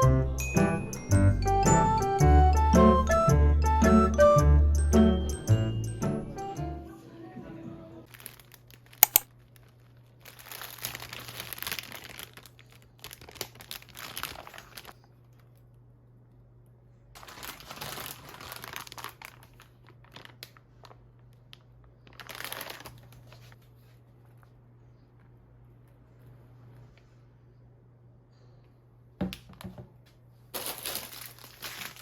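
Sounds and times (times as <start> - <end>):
packaging crinkling: 8.1 - 15.4, 17.2 - 23.6, 30.5 - 32.0.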